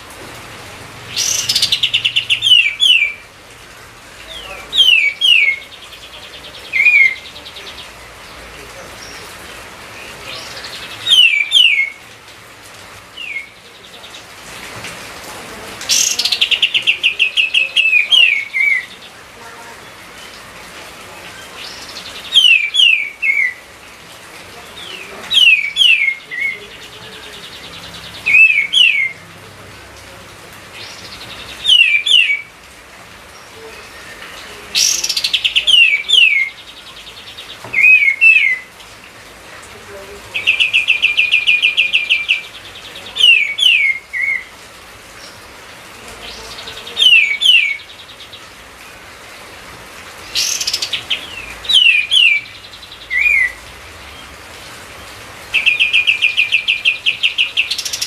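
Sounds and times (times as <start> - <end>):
songbird whistling: 4.8 - 5.7, 11.1 - 12.0.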